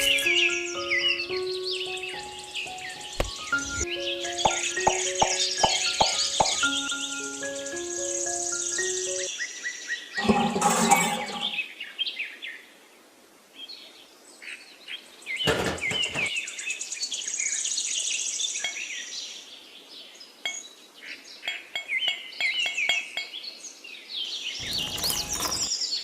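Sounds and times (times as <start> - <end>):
birds chirping: 0.0 - 9.3, 24.6 - 25.8
clattering handling noises: 10.2 - 11.6, 15.5 - 16.3, 24.6 - 25.7.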